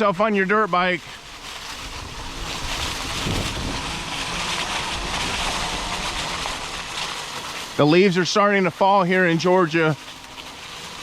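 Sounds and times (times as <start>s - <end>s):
tyres rolling over dirt trail: 0.0s - 11.0s
wind buffeting microphone: 0.8s - 7.3s.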